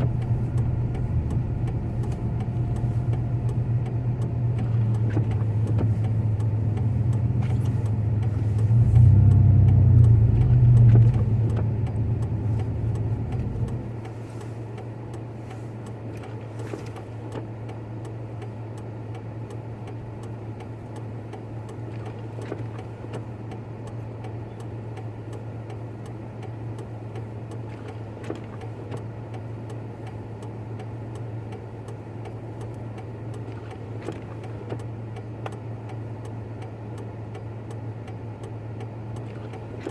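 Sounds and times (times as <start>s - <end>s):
truck engine from inside cab: 0.0s - 39.9s.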